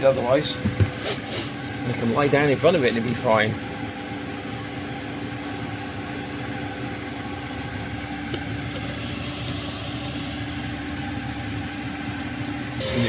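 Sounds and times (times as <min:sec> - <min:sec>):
air heater fan humming: 0:00.0 - 0:13.0.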